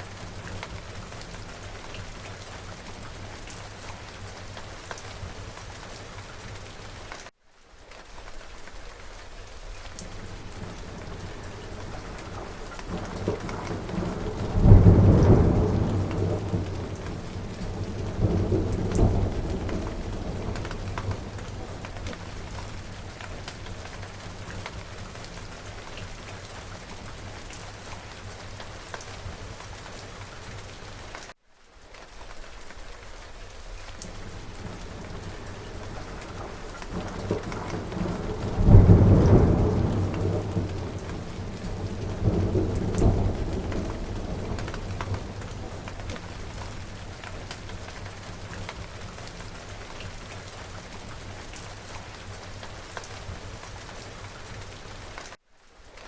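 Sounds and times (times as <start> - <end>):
steady rain: 0.0 - 56.0
loud thunder clap rumbling: 11.8 - 21.9, 34.6 - 46.1.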